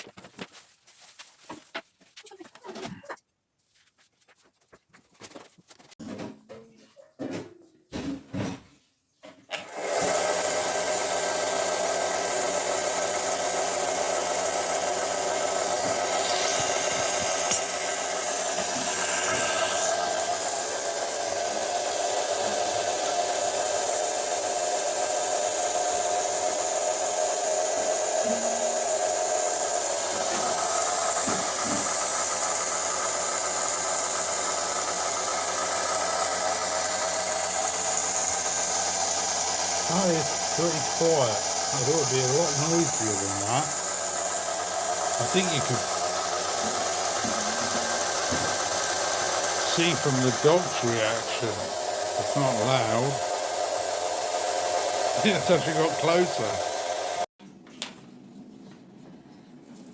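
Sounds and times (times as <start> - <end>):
sander motor humming: 9.6 - 57.3.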